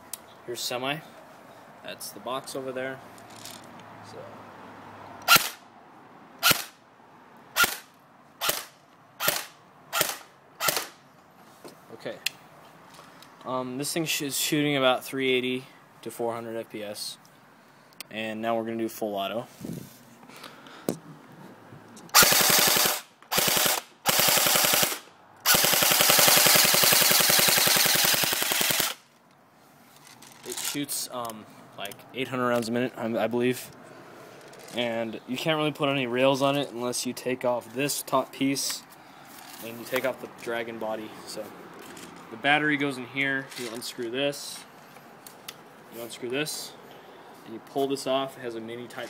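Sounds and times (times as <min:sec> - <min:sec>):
airsoft gun shots cracking: 0:05.3 - 0:05.6, 0:07.6 - 0:11.0, 0:22.2 - 0:29.0.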